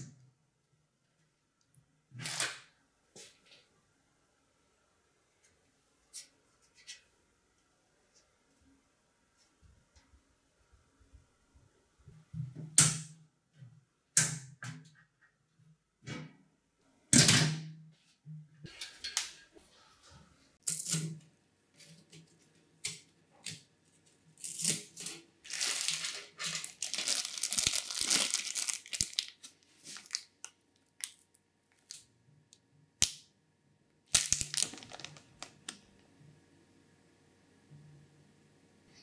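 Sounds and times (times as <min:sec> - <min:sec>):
plastic packaging crinkling: 0:24.4 - 0:32.0, 0:34.1 - 0:35.8.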